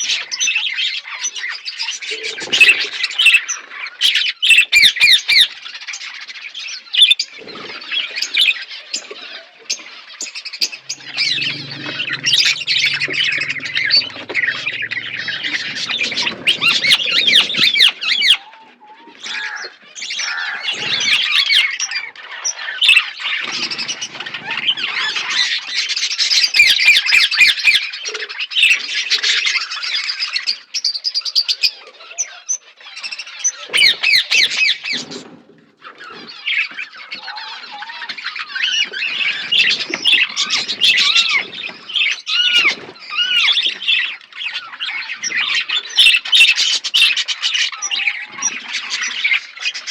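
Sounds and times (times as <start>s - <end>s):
budgerigars chattering: 10.6s - 18.4s.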